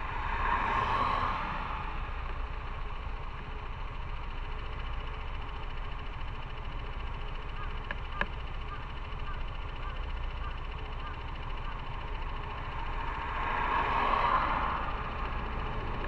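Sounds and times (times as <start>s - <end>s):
motorcycle engine running: 0.0s - 16.0s
road and wind noise: 0.0s - 16.0s
faint chirps: 4.1s - 13.4s
sharp click: 7.6s - 8.4s.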